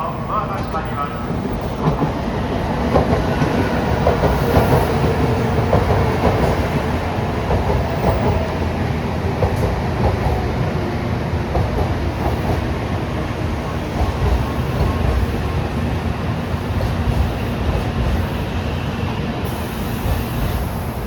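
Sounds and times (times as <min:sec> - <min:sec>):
train running rumble: 0:00.0 - 0:21.0.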